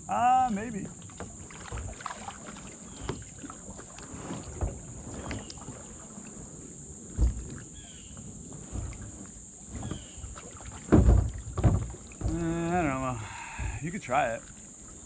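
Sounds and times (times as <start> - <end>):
insects and crickets droning: 0.0 - 15.0
dull knocks on kayak: 1.0 - 5.9, 7.1 - 7.8, 8.6 - 13.8.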